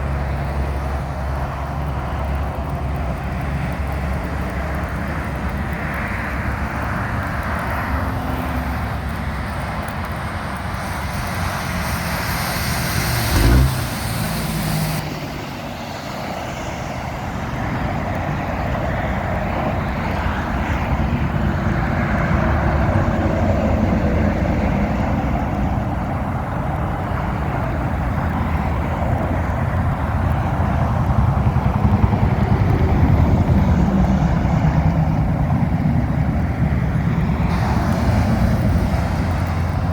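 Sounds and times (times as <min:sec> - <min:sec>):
traffic on wet pavement: 0:00.0 - 0:39.9.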